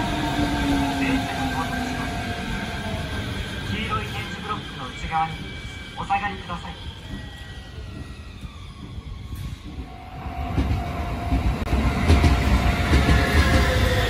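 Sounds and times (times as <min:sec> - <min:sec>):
electric train whine: 0:00.0 - 0:14.0
train wheels rumbling on rails: 0:00.0 - 0:14.0.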